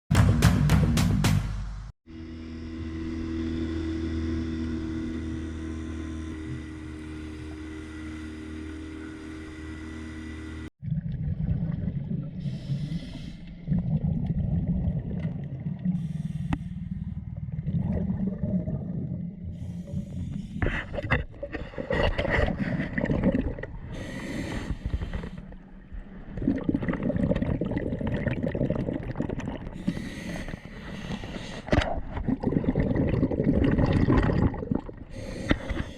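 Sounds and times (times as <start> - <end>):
steady low hum: 2.1 - 10.7.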